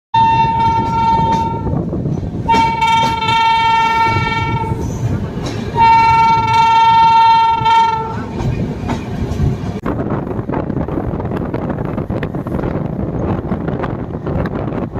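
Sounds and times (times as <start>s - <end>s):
train horn blasts: 0.2s - 1.9s, 2.5s - 5.0s, 5.7s - 8.3s
moving train rumble: 0.2s - 14.9s.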